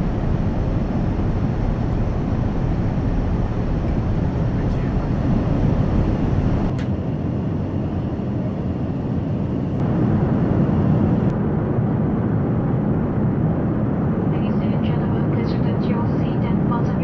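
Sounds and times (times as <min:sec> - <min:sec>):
airplane cabin engine and airflow rush: 0:00.0 - 0:17.0.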